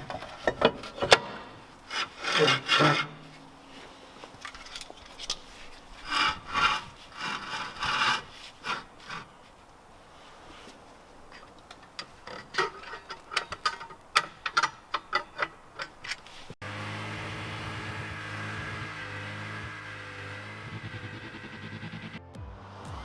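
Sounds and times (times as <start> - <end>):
hand tools clinking on metal: 11.3 - 16.2.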